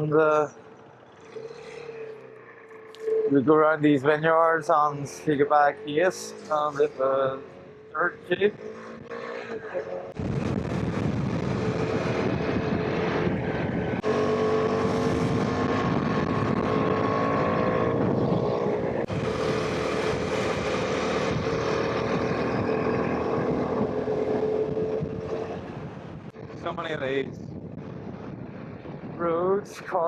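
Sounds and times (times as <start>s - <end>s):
motorcycle engine running: 0.0s - 3.8s.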